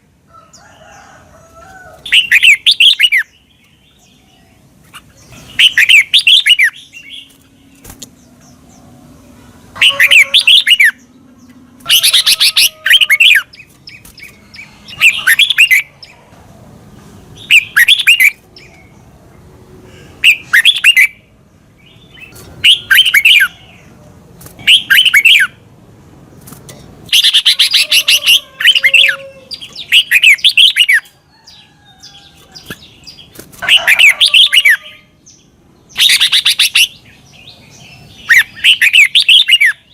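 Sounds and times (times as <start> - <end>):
bird singing bubbling phrases: 15.0 - 16.1, 17.4 - 18.8.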